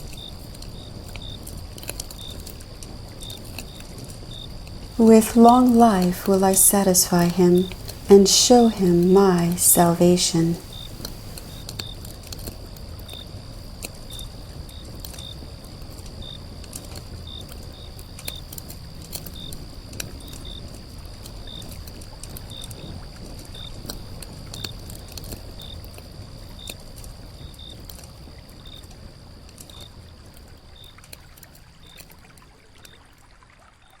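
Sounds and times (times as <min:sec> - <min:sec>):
thin steady high tone: 0:05.0 - 0:11.6
water lapping and trickling: 0:29.1 - 0:34.0.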